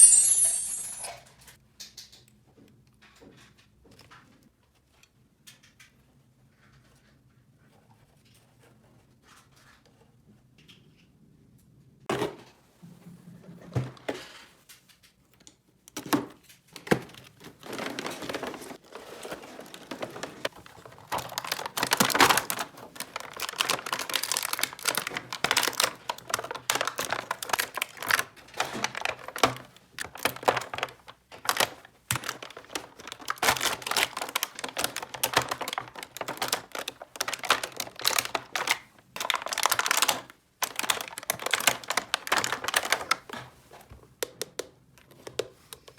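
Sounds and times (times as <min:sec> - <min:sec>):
plastic packaging crinkling: 0:17.2 - 0:43.4.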